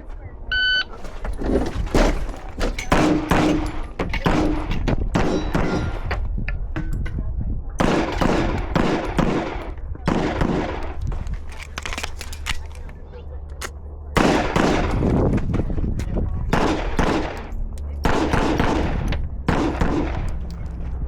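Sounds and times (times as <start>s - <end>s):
rapid pistol gunshots: 2.9s - 6.0s, 7.8s - 11.0s, 14.2s - 15.2s, 16.5s - 20.5s.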